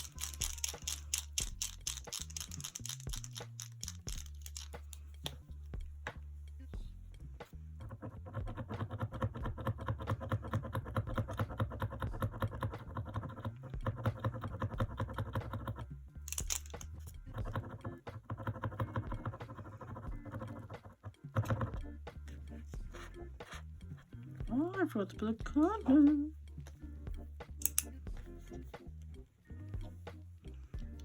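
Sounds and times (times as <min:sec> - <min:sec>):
paint marker ball rattling: 0:00.0 - 0:05.5, 0:08.5 - 0:21.8, 0:27.6 - 0:27.9.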